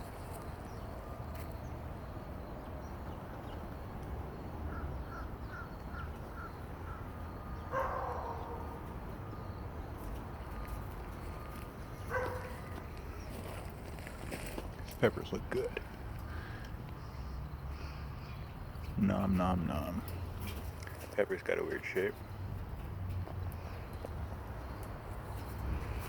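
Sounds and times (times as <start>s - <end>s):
crow cawing: 4.7s - 7.1s.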